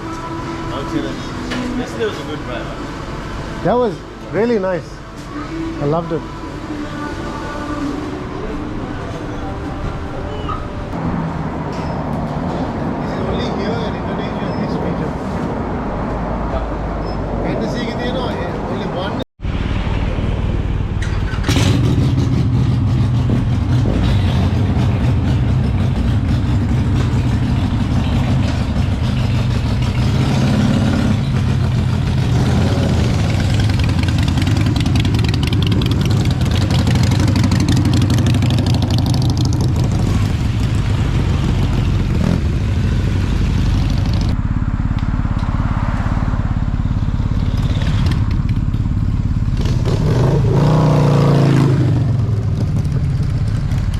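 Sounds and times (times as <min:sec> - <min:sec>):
motorcycle engine running: 0:21.4 - 0:50.9, 0:51.6 - 0:53.9.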